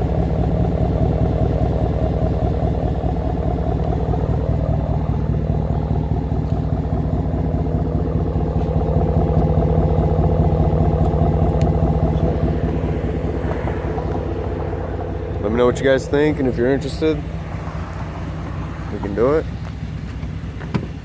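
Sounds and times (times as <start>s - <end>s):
loud engine exhaust idling: 0.0s - 21.0s.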